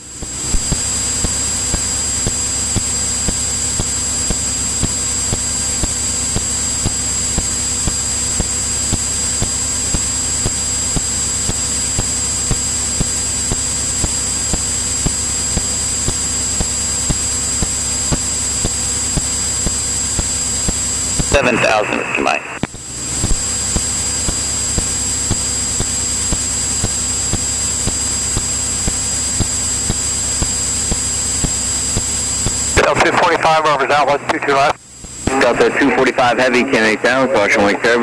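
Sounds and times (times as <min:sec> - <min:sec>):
high-pitched electrical whines: 0:00.0 - 0:38.0
radio intercom hiss: 0:21.2 - 0:23.4, 0:32.6 - 0:38.0.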